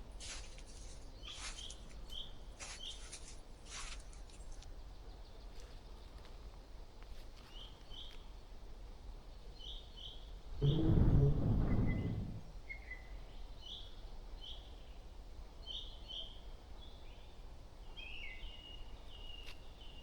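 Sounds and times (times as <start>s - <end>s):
faint low rumble: 10.5s - 12.7s
hissing noise bursts: 10.6s - 12.5s.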